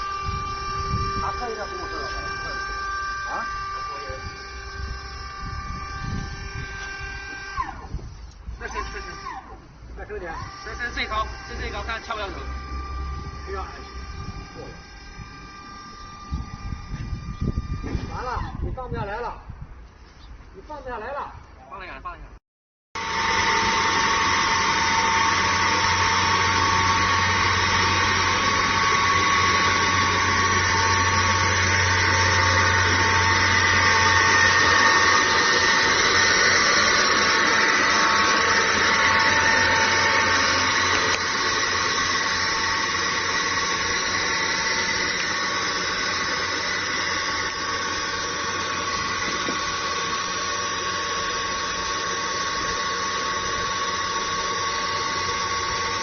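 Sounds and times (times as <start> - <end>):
low hum: 0.0 - 10.6, 23.0 - 56.0
suction pump whining: 0.0 - 19.7, 23.0 - 56.0.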